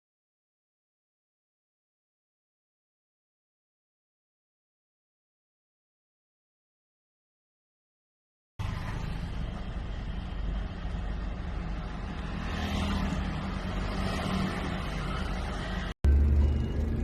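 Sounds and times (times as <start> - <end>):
car engine running: 16.0 - 17.0.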